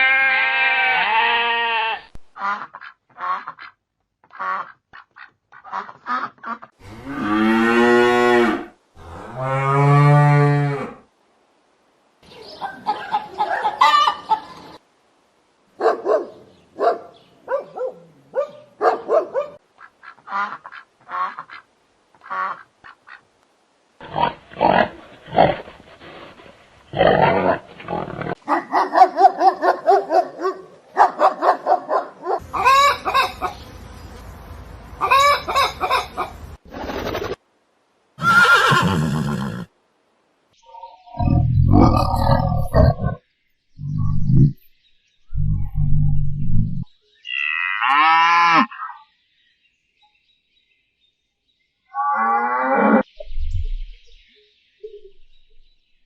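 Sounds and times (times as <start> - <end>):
farm animal long calls: 0.0 - 2.1.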